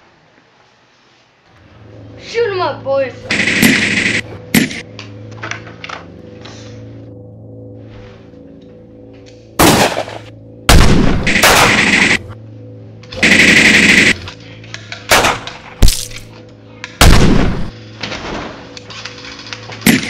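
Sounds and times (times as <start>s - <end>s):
background music: 1.6s - 20.0s
automatic gunfire bursts: 3.3s - 4.8s, 9.6s - 12.2s, 13.2s - 14.2s, 17.0s - 17.7s
single gunshots: 3.4s - 4.8s, 9.6s - 12.2s, 15.1s - 16.2s, 17.0s - 17.7s.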